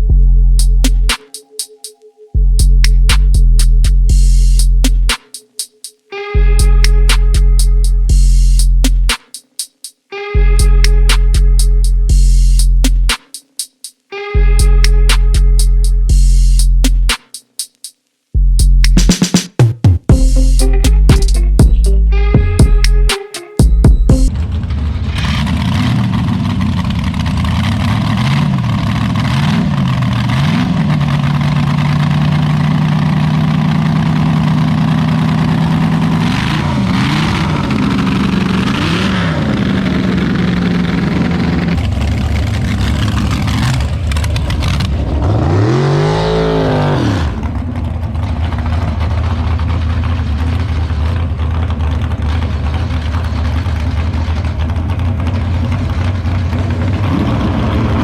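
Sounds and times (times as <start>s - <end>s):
engine revving: 24.3s - 47.7s
drag racing engine idling: 24.4s - 45.0s, 47.4s - 57.1s.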